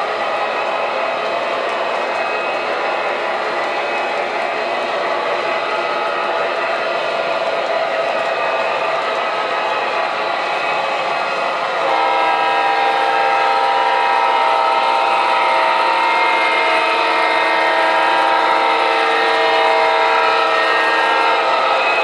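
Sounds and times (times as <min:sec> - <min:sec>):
model train running noise: 0:00.0 - 0:22.0
model train horn blast: 0:11.8 - 0:21.6.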